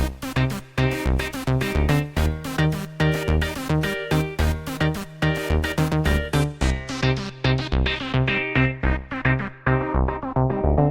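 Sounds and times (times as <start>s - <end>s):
electronic music with steady beat: 0.0s - 10.9s.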